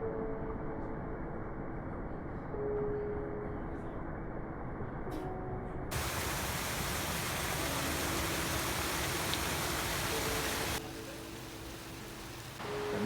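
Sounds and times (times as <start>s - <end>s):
rushing water of creek and waterfall: 5.9s - 13.0s.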